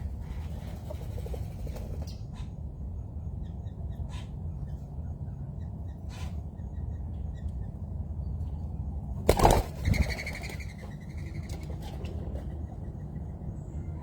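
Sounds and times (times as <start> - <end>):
bird wings flapping: 9.3 - 10.8.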